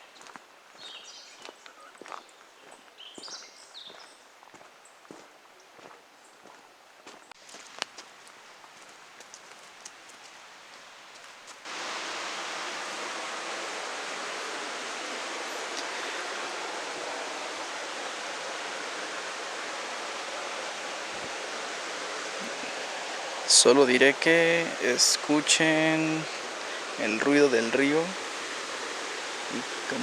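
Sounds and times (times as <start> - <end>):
faint footsteps on trail: 0.0 - 11.9
river rushing: 10.5 - 30.0.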